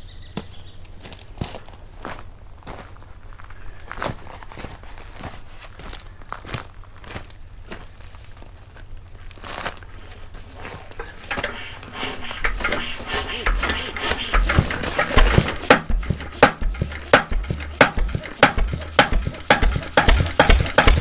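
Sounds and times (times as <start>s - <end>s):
metallic scraping and clatter: 10.6s - 21.0s
diesel engine heavy firing knocks: 11.0s - 21.0s.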